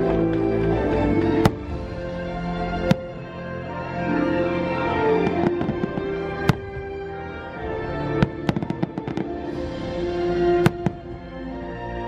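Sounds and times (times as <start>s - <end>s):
show music: 0.0s - 12.0s
fireworks popping: 5.3s - 7.0s.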